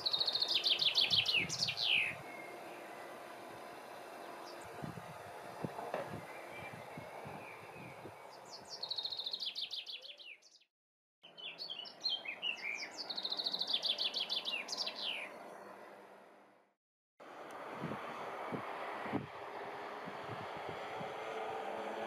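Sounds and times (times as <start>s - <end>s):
songbird trilling: 0.0s - 3.1s, 6.2s - 10.5s, 11.3s - 15.4s.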